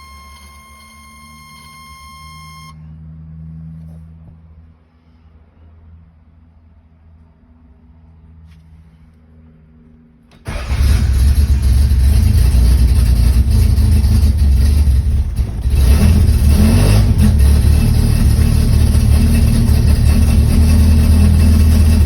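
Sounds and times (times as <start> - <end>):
car engine starting and idling: 0.0 - 3.0, 10.2 - 22.0.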